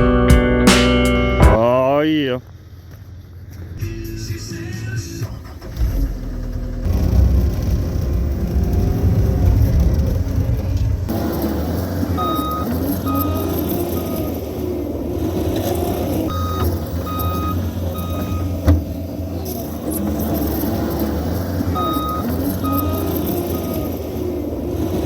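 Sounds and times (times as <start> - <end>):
diesel engine running under load: 0.0 - 25.0
sharp knock: 0.7 - 1.6
backup alarm beeping: 11.1 - 14.5, 16.2 - 24.2.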